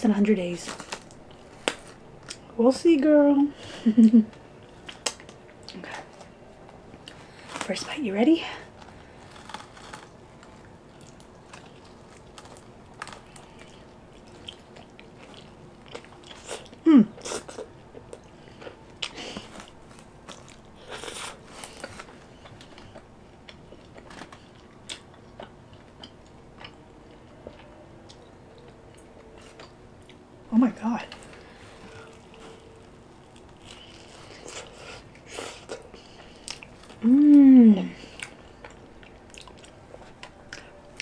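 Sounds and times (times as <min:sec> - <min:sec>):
crunching fried pizza crust: 0:00.5 - 0:02.5, 0:07.0 - 0:29.8, 0:31.2 - 0:41.0
person humming: 0:16.8 - 0:17.2, 0:37.0 - 0:38.0.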